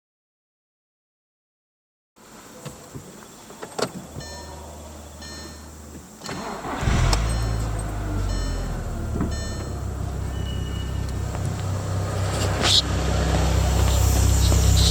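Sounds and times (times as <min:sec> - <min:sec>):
car engine starting and idling: 0:03.9 - 0:14.9
low steady hum: 0:04.2 - 0:14.9.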